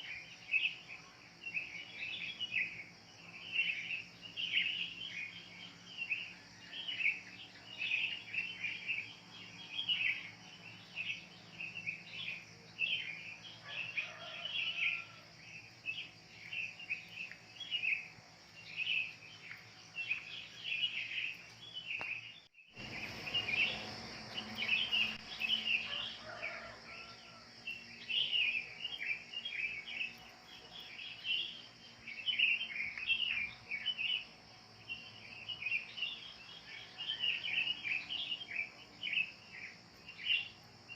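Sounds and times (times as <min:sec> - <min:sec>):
birds chirping and calling: 0:03.4 - 0:27.2.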